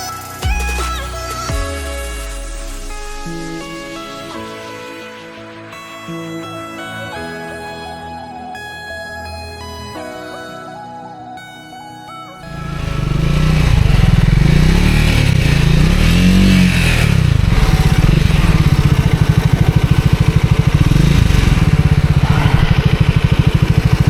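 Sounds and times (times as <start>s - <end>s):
motorcycle engine revving: 12.5s - 24.0s.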